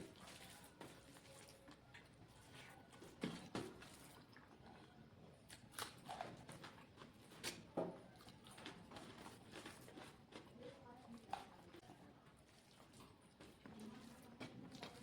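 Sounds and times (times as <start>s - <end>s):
faint chewing: 4.2s - 15.0s.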